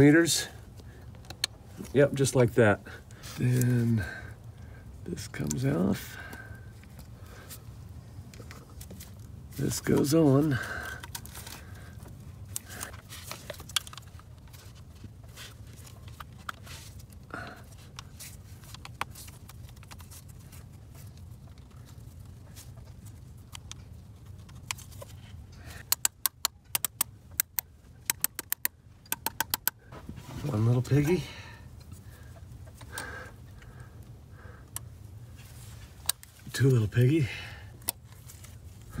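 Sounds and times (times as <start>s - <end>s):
low steady hum: 0.0s - 39.0s
metal fittings clicking and knocking: 25.8s - 29.8s
ratchet wrench clicking: 25.8s - 29.8s.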